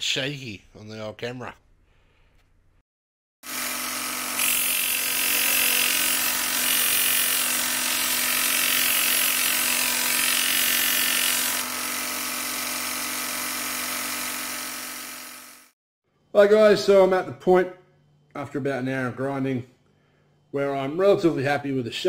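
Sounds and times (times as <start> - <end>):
electric grinder humming: 3.4 - 15.8.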